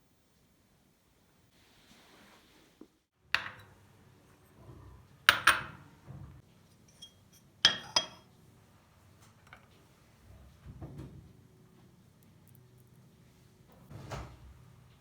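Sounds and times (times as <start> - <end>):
dishes and glassware clinking: 3.4 - 3.9, 5.3 - 5.8, 6.7 - 8.3.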